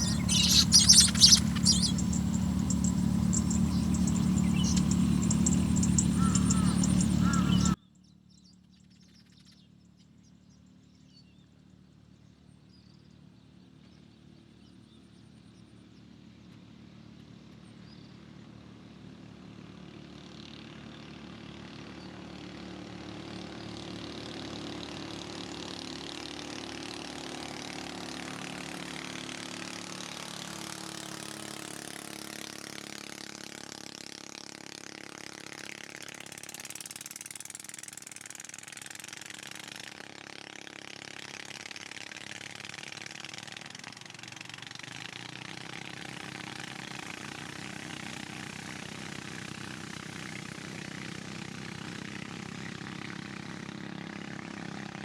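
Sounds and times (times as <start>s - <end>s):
engine humming: 0.0s - 7.8s, 22.3s - 40.4s.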